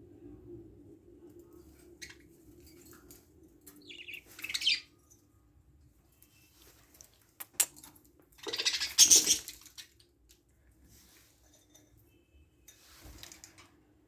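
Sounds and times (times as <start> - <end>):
budgies rustling: 1.8 - 5.2, 6.1 - 10.1
sharp clicks in cage: 7.4 - 8.0.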